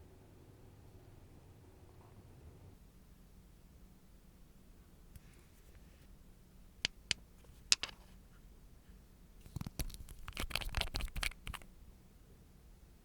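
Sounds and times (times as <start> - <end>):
small tools clicking: 9.5 - 11.6
tools scratching: 9.5 - 11.6.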